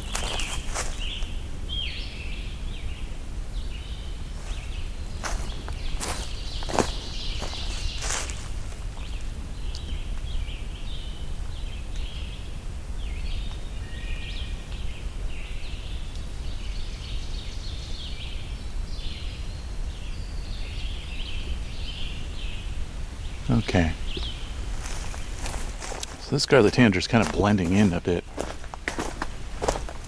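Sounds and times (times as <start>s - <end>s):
songbirds singing: 0.0s - 30.0s
tanager song phrases: 26.2s - 28.3s.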